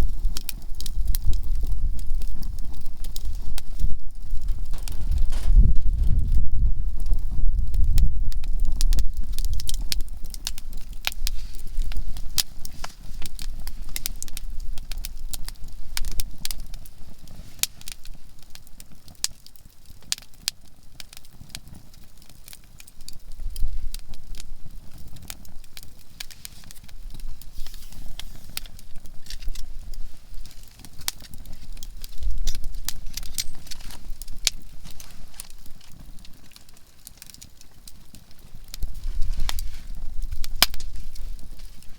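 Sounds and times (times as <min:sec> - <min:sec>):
campfire crackling and popping: 0:00.0 - 0:41.9
low rumble: 0:03.7 - 0:08.3.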